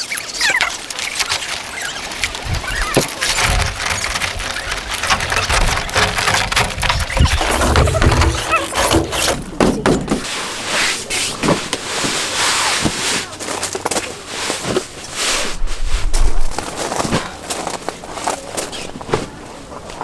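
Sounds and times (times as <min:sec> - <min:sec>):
brief squeaks: 0:00.0 - 0:09.6
cot frame knocks and clicks: 0:02.4 - 0:10.3.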